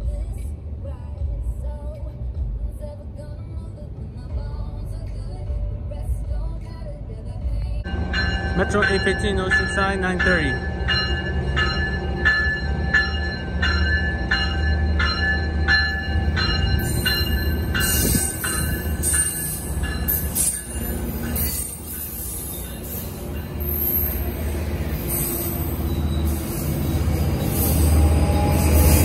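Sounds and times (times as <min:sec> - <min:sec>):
diesel locomotive engine: 0:00.0 - 0:29.0
locomotive bell ringing: 0:07.8 - 0:29.0
train wheels squealing on rails: 0:10.4 - 0:29.0.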